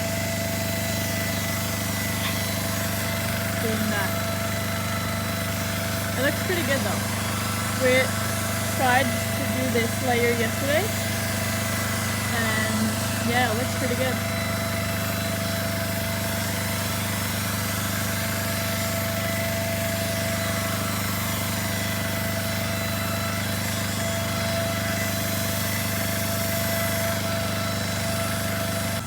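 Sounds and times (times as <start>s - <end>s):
machine humming and whining: 0.0s - 29.0s.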